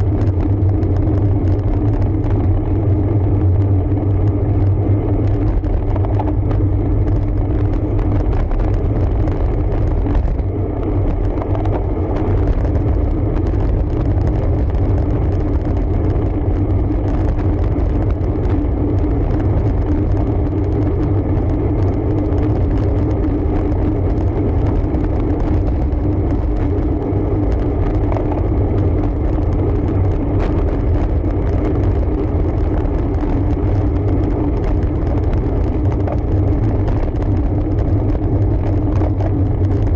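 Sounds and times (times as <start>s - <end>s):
faint steady hum: 0.0s - 39.9s
road noise from bike: 0.0s - 39.9s
wind noise: 0.0s - 39.9s.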